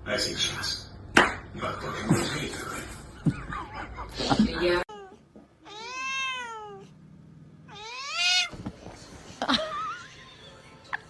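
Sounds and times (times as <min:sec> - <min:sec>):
cat meowing: 0:04.9 - 0:06.9, 0:07.7 - 0:08.6.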